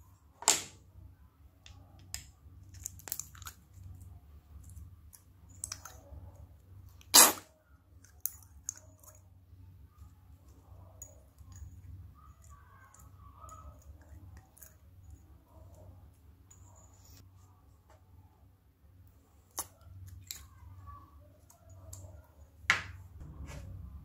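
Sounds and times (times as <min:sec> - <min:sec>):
low steady hum: 0:00.0 - 0:24.0
small sticky clicks and crackles: 0:01.6 - 0:06.1, 0:08.0 - 0:09.3.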